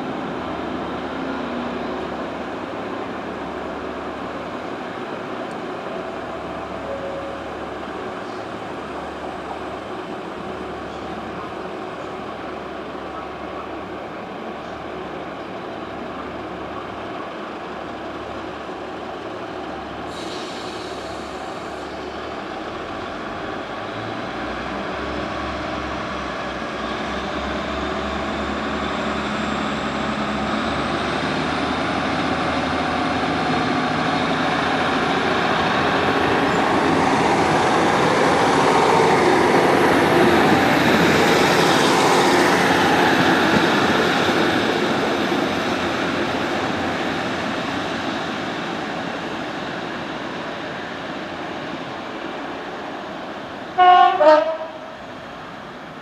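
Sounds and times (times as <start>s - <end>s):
diesel train running past: 0.0s - 56.0s.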